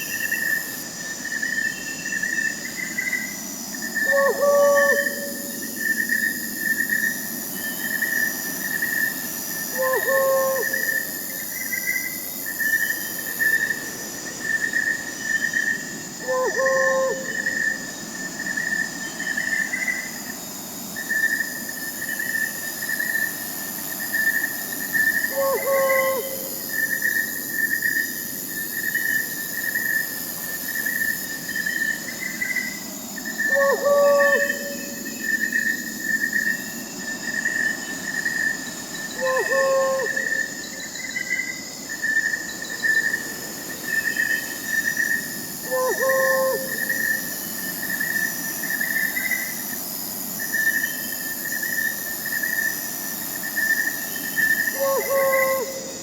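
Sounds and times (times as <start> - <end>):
crickets chirping: 0.0 - 56.0
high insect buzz: 0.0 - 56.0
owl hooting: 4.0 - 5.7, 9.7 - 11.1, 16.2 - 17.6, 25.3 - 26.6, 33.4 - 35.1, 39.2 - 40.5, 45.6 - 47.2, 54.4 - 55.9.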